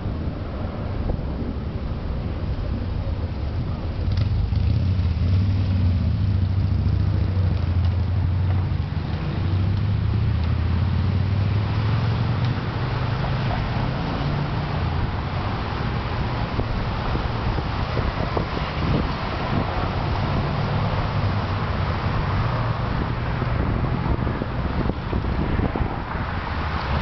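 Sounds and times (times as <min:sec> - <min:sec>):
low rumble of motor traffic: 0:00.0 - 0:27.0.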